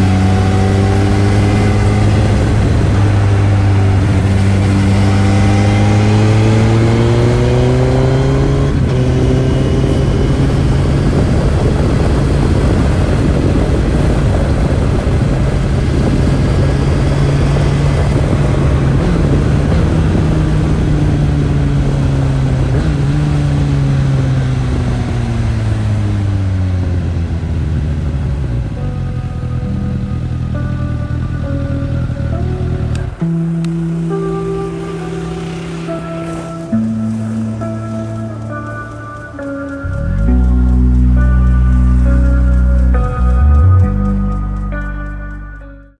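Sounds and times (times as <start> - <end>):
wind rush: 0.0 - 29.8
motorcycle engine revving: 0.0 - 45.9.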